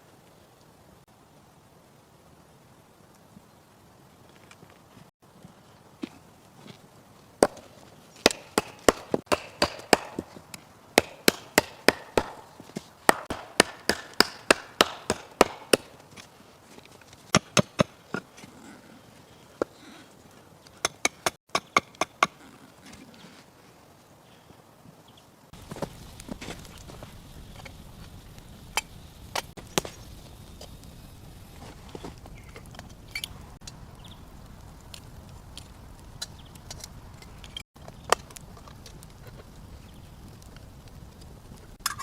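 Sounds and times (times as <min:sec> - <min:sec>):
sharp chopping strikes: 0:08.2 - 0:10.4, 0:11.0 - 0:15.9, 0:17.3 - 0:18.0.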